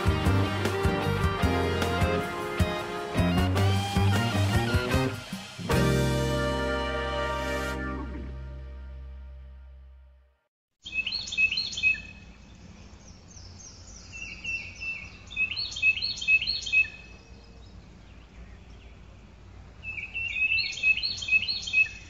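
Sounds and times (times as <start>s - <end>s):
songbirds chirping: 10.8s - 22.0s
low background noise: 11.3s - 22.0s.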